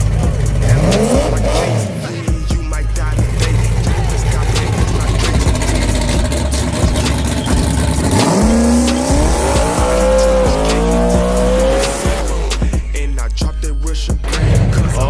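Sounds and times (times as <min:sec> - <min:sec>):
hip-hop music: 0:00.0 - 0:15.0
truck engine accelerating: 0:00.0 - 0:15.0
loud rushing noise: 0:05.8 - 0:12.7.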